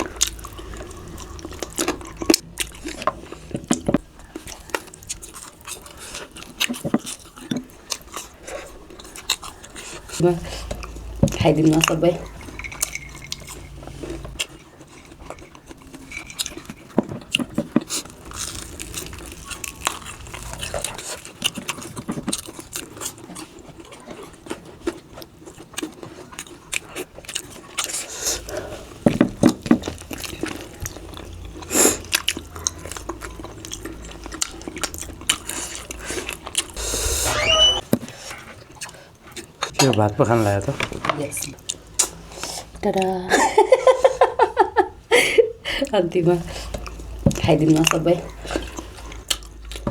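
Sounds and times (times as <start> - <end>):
person chewing food: 0.0 - 39.7, 46.4 - 49.9.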